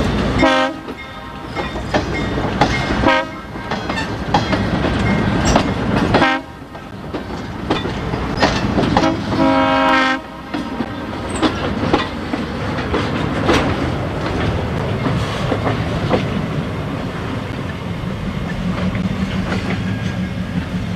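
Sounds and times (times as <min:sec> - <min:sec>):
train rumble: 0:00.0 - 0:20.9
train wheels clicking on rails: 0:00.0 - 0:20.9
train horn blasts: 0:00.4 - 0:01.5, 0:03.0 - 0:03.6, 0:06.2 - 0:06.6, 0:09.0 - 0:10.6.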